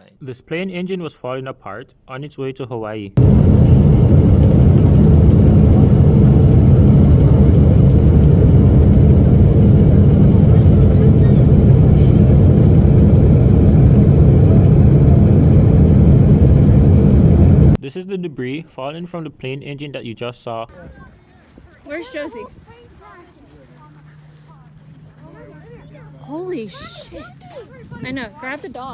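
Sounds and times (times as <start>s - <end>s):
jet engine low rumble: 3.2s - 17.8s.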